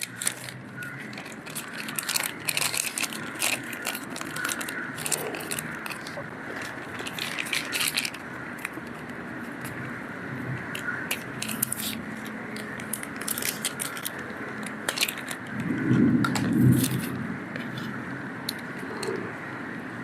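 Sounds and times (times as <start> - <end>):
food wrapping crackling: 0.0 - 18.0
steady background hum: 0.0 - 20.0
muffled rumble: 15.2 - 19.4.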